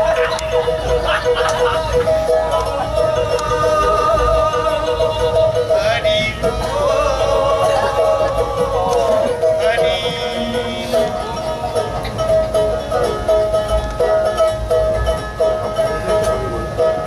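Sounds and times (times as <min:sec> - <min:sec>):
person singing: 0:00.0 - 0:12.0
instrument holding steady tones: 0:00.0 - 0:17.0.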